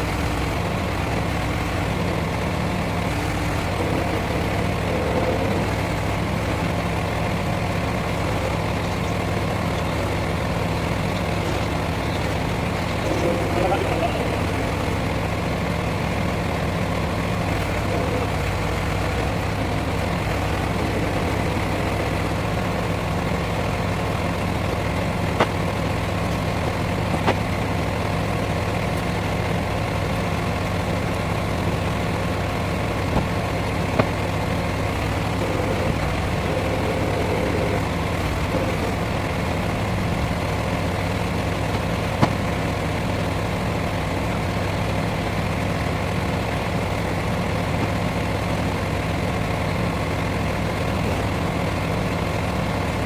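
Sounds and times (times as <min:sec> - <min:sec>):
lorry engine idling: 0:00.0 - 0:53.0.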